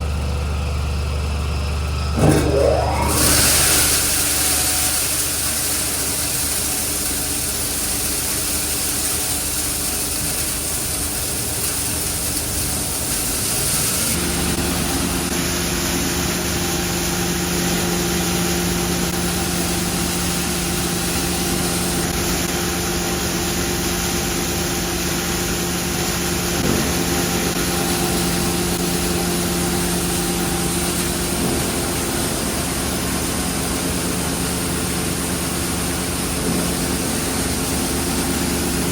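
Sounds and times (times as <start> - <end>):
low hum tone: 2.1 - 4.0
granulating plant hum and hiss: 2.8 - 38.9.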